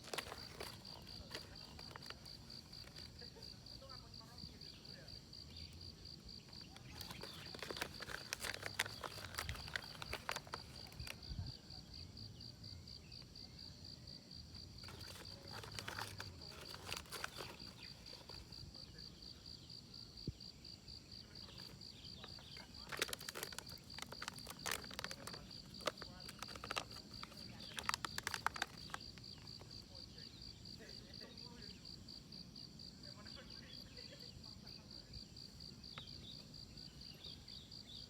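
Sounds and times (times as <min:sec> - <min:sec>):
rustling and clicking: 0:00.0 - 0:03.2, 0:06.8 - 0:11.2, 0:14.8 - 0:18.5, 0:21.6 - 0:29.0
insect chirping: 0:00.0 - 0:38.0.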